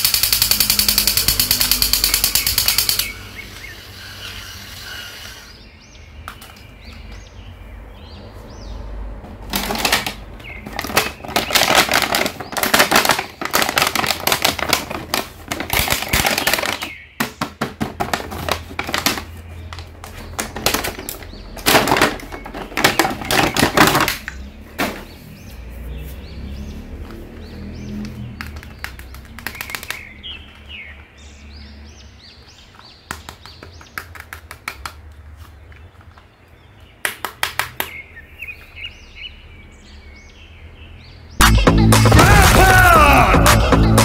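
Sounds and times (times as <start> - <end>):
plastic packaging crinkling: 9.5 - 16.9.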